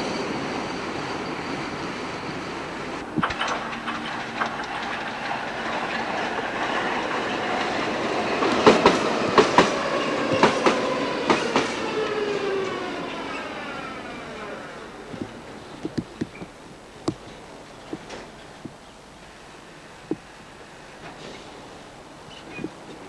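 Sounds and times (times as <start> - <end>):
tram motor whine: 0.0 - 23.0
tram running noise: 0.0 - 23.0
tram wheels clicking over rail joints: 0.0 - 23.0.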